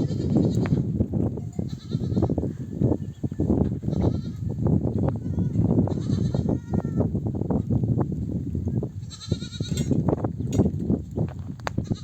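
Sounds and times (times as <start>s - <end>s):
high-pitched bleat: 0.0s - 0.9s, 1.5s - 2.4s, 3.9s - 4.4s, 5.1s - 7.1s, 9.1s - 9.9s, 11.8s - 12.0s
sheep bleating: 5.2s - 7.1s.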